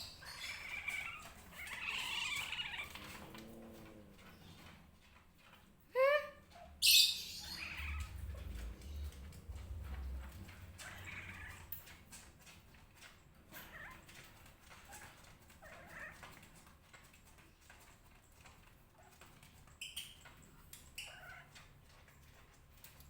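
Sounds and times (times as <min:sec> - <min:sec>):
cat meowing: 0:00.2 - 0:04.3, 0:07.4 - 0:11.9.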